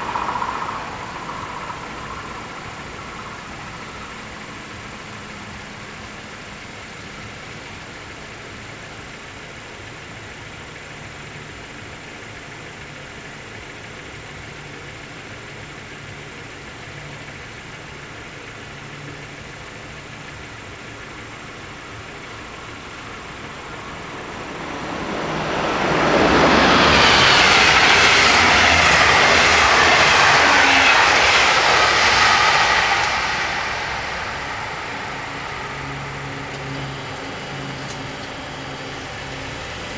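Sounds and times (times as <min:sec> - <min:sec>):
train wheel and rail noise: 0:00.0 - 0:39.9.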